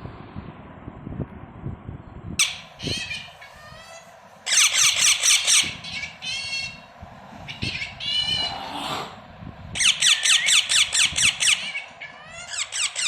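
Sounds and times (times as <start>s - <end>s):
baby parrots chirping: 2.4s - 9.1s, 9.8s - 13.0s.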